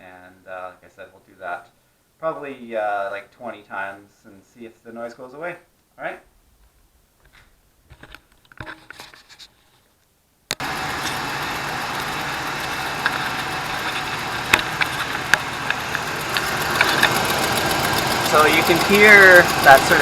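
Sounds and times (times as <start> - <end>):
engine lifter ticking: 10.6 - 20.0
truck engine idling: 10.6 - 20.0.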